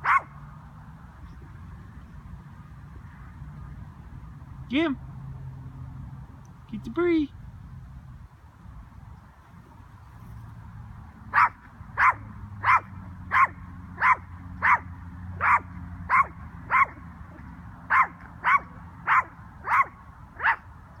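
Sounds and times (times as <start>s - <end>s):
small dog barking: 0.0s - 0.3s, 11.3s - 17.0s, 17.9s - 20.7s.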